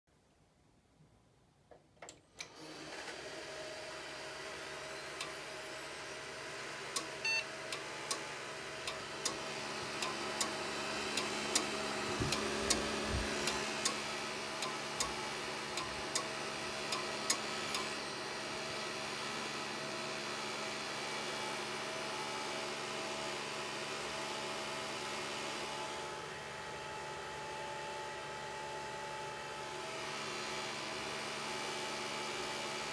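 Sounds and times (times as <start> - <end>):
computer humming: 4.4 - 21.9
hard disk clicking: 7.0 - 17.9.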